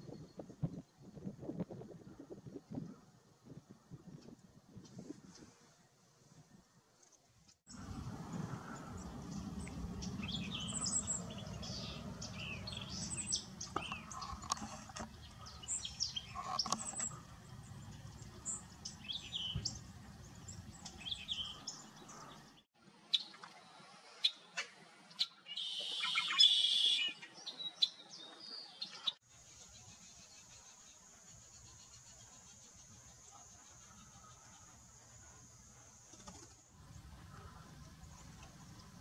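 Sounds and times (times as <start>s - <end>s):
low background rumble: 7.7s - 14.5s
birds chirping: 7.7s - 22.6s.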